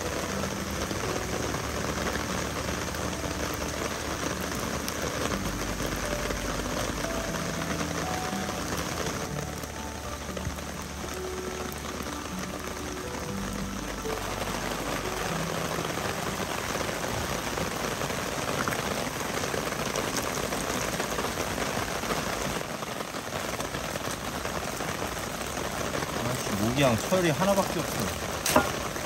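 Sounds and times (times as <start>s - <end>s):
rain pattering on ground and deck: 0.0s - 29.0s.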